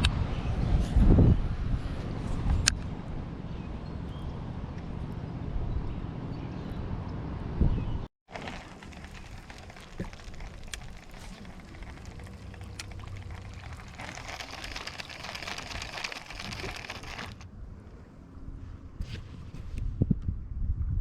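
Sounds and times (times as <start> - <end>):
rain falling steadily: 8.3 - 15.7.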